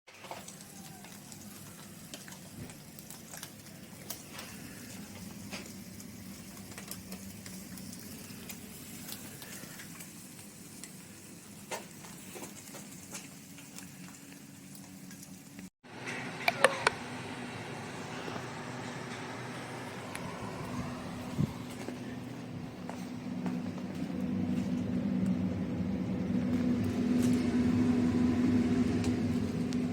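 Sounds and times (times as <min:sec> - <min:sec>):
wood fire crackling: 0:00.1 - 0:15.7, 0:17.6 - 0:29.9
low steady hum: 0:16.4 - 0:29.9.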